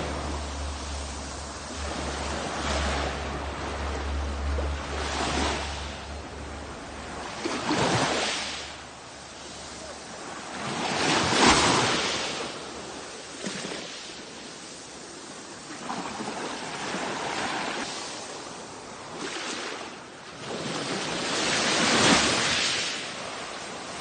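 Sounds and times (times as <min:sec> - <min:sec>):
low steady rumble: 0:00.0 - 0:08.1
sea waves breaking on shore: 0:00.0 - 0:24.0.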